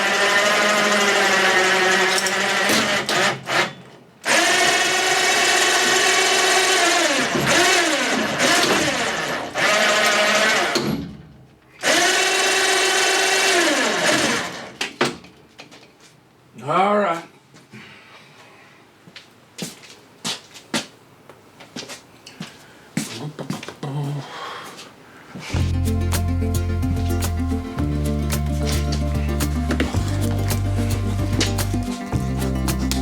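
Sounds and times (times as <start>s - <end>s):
power tool motor running: 0.0s - 10.8s, 11.8s - 14.8s.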